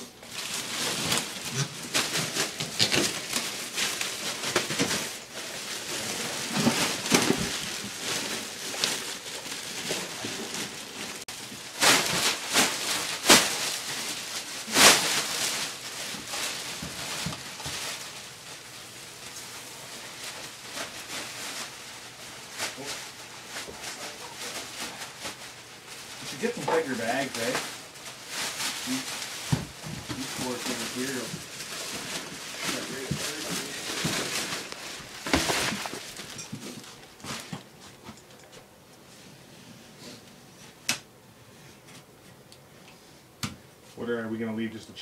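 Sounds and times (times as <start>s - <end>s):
demolition debris scraping and crackling: 28.3s - 38.4s.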